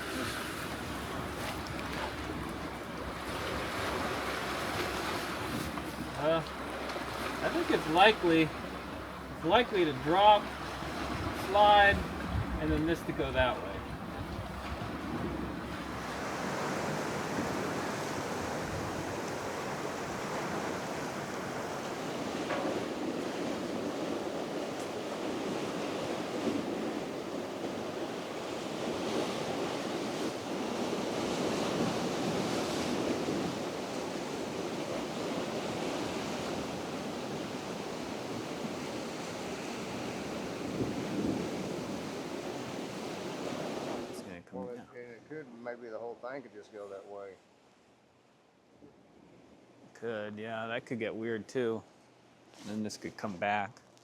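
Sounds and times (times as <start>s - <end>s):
surf washing along shore: 0.0s - 44.8s
wind: 0.0s - 54.0s.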